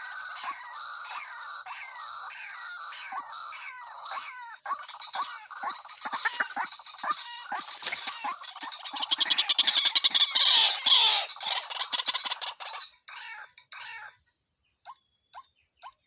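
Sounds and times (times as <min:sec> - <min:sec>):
waterhen calling: 0:00.0 - 0:13.9.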